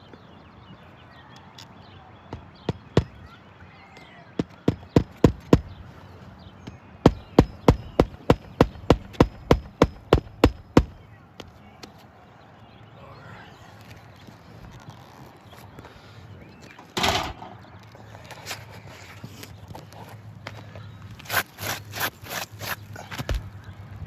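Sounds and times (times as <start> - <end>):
hammer blows on a roof: 2.3 - 3.3, 4.4 - 5.9, 7.0 - 11.0.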